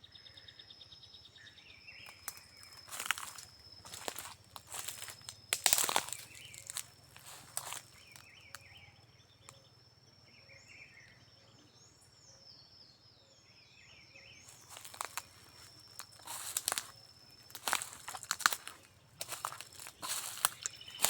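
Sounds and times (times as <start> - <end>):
birds chirping: 1.1 - 12.7, 13.3 - 21.0
footsteps crunching on dry ground: 2.1 - 8.6, 14.5 - 21.0.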